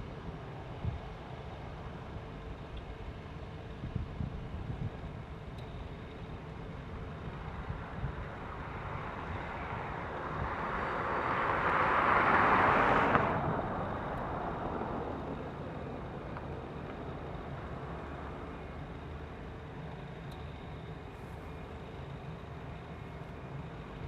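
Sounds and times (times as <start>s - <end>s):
steady low rumble: 0.0s - 24.0s
vehicle passing: 7.7s - 18.6s.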